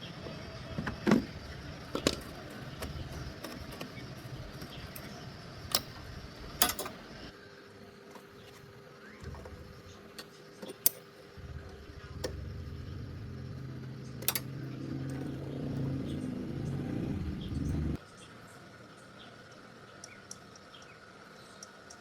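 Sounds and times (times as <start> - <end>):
motor running: 0.0 - 7.3, 11.2 - 18.0
metal tools clicking: 4.6 - 7.3, 10.2 - 11.1, 14.2 - 14.6.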